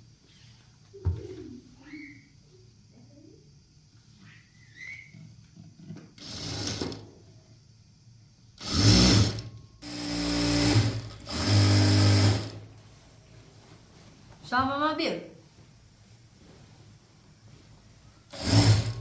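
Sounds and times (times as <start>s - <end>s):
sewing machine stitching: 6.2s - 7.0s, 8.6s - 12.6s, 18.3s - 19.0s.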